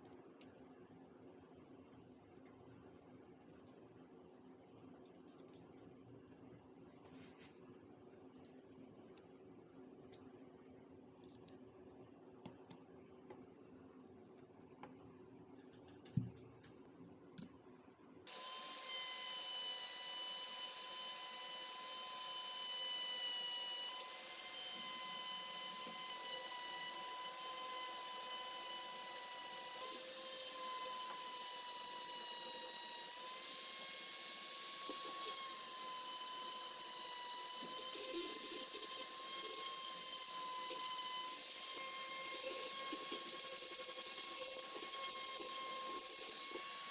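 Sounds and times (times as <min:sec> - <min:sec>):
power tool high whine: 0:18.3 - 0:46.9.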